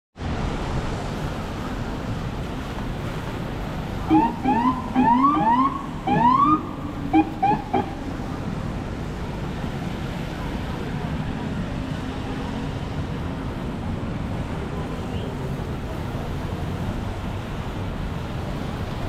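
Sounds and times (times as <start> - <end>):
city traffic noise: 0.2 - 19.0
emergency siren whooping: 4.1 - 8.2.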